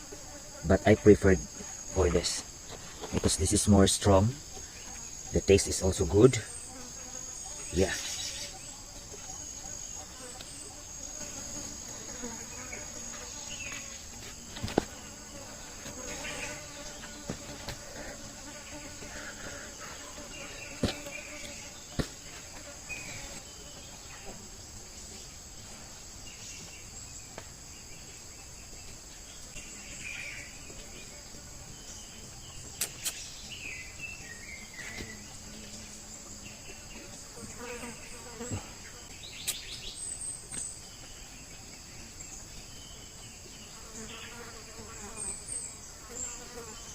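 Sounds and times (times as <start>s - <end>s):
insects chorus: 0.0s - 46.9s.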